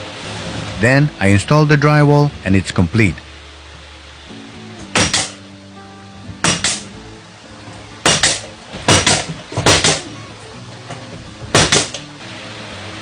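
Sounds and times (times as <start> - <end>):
soft background music: 0.0 - 13.0
hammer blows on wood: 4.8 - 5.4, 6.4 - 7.0, 8.0 - 10.2.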